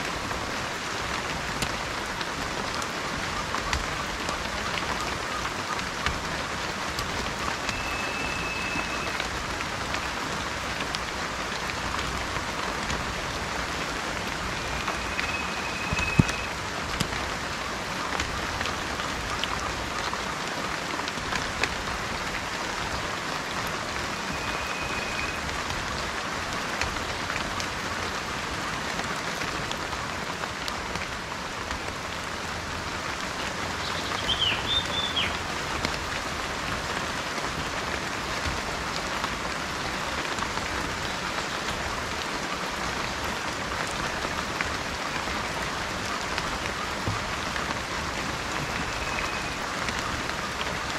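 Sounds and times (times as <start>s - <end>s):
rain falling: 0.0s - 50.9s
bird whistles: 7.7s - 9.2s, 14.6s - 16.5s, 24.3s - 25.4s, 34.1s - 35.3s, 48.7s - 49.6s
bird chirping: 33.8s - 35.4s.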